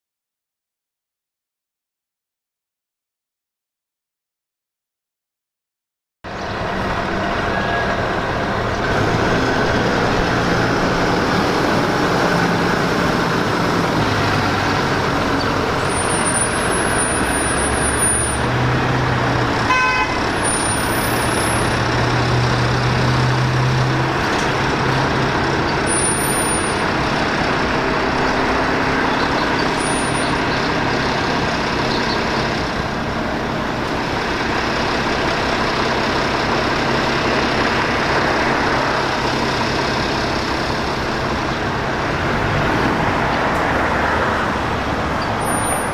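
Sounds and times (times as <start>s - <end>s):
truck engine droning: 6.3s - 45.9s
horn toot: 19.6s - 21.6s.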